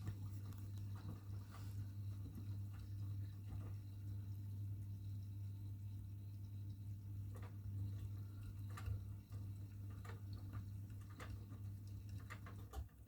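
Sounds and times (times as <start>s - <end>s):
light clicks and taps: 0.0s - 4.2s, 7.3s - 13.0s
washing machine hum: 0.0s - 13.0s.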